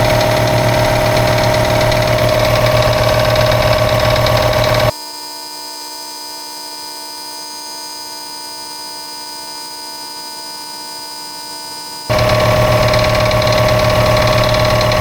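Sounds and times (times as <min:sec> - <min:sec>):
electrical buzz: 0:00.0 - 0:04.9, 0:12.1 - 0:15.0.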